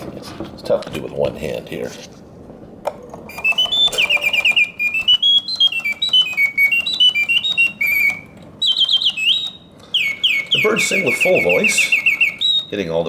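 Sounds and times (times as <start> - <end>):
clockwork mechanism ticking: 2.9 - 13.0
mechanical bird whistle trilling: 3.3 - 13.0.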